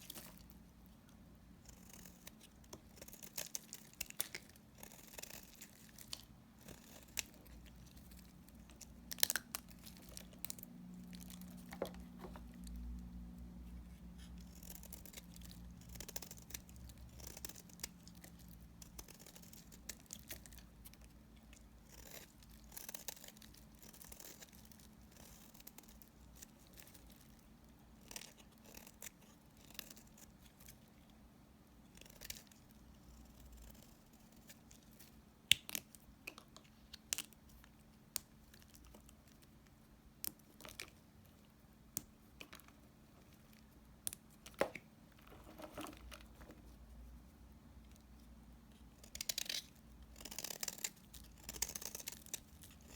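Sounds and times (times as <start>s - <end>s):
faint low hum: 0.0s - 52.9s.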